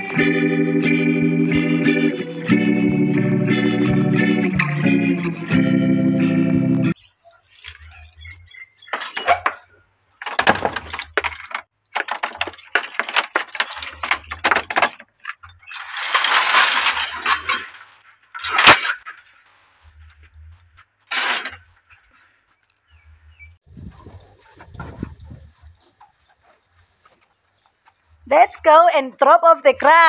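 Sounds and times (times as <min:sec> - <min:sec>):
grass and brush rustling: 0:06.9 - 0:30.0.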